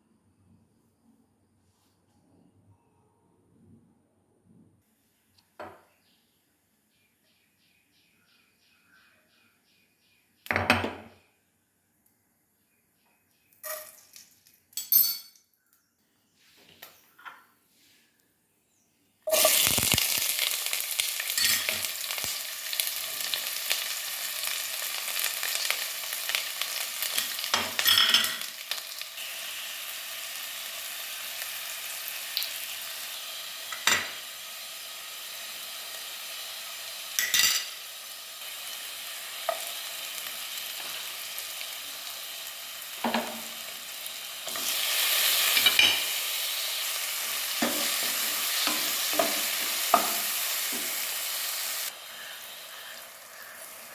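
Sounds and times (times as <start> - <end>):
spoon scraping a pan: 13.6 - 14.1, 19.3 - 20.0, 21.4 - 21.9, 44.5 - 46.2
food sizzling in a pan: 13.6 - 14.4, 19.2 - 53.9.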